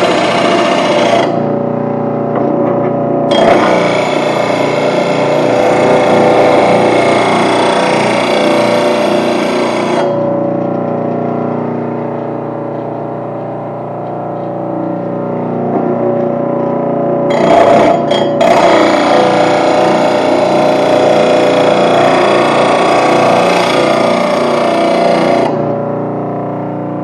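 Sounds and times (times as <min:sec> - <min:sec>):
grinding wheel on steel blade: 0:00.0 - 0:01.4, 0:03.3 - 0:10.2, 0:17.3 - 0:25.6
grinder motor running: 0:00.0 - 0:01.8, 0:03.3 - 0:12.9, 0:14.3 - 0:25.9.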